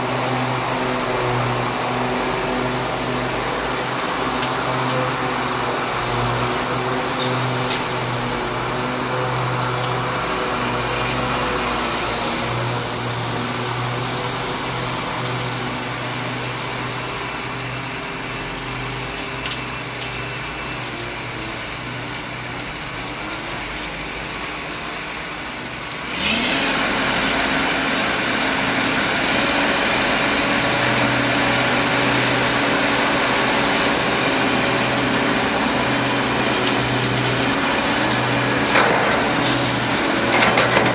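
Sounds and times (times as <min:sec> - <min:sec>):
heavy machinery engine running: 0:00.0 - 0:40.9.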